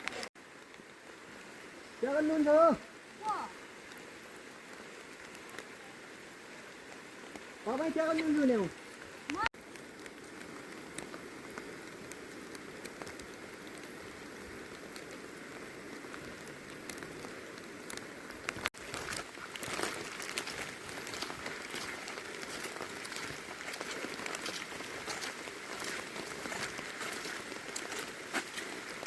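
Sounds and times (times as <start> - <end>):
steady rain with ticking drops: 0.0 - 29.0.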